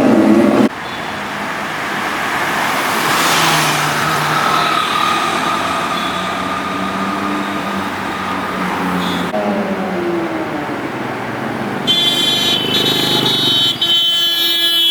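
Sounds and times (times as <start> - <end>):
vehicle passing by: 0.0 - 13.9
loud engine note: 3.4 - 13.8.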